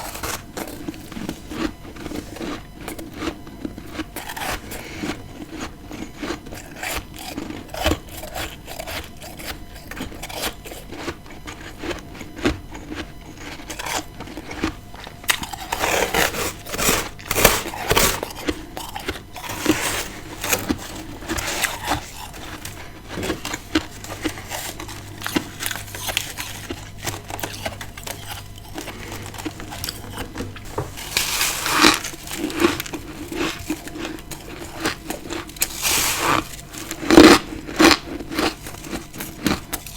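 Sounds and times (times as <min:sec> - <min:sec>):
chewing and crunching ice: 0:00.0 - 0:39.9.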